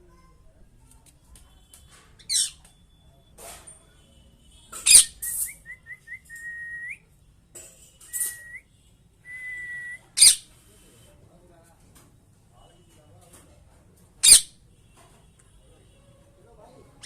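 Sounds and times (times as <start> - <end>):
parrot whistling: 8.1 - 8.6, 9.3 - 10.4.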